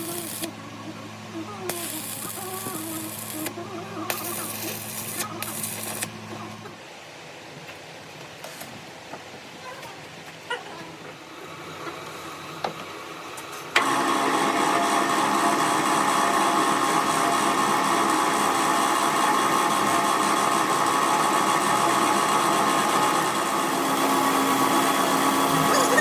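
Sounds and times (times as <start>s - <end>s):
power tool running: 0.0s - 0.6s, 1.2s - 6.6s, 13.7s - 26.0s.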